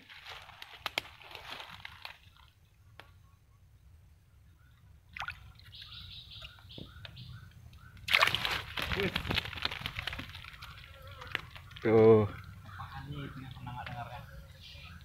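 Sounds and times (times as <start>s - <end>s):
faint chirping: 5.6s - 8.1s.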